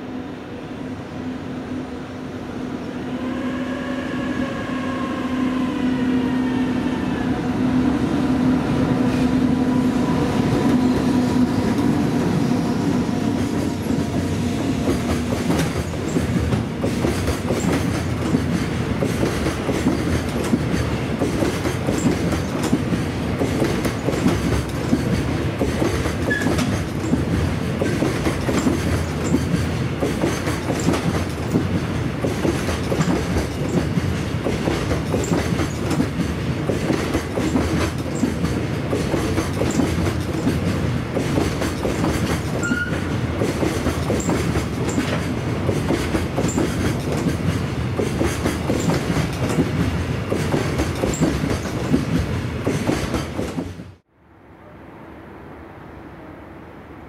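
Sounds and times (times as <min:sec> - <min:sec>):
train wheels clattering over rail joints: 0:13.4 - 0:54.0.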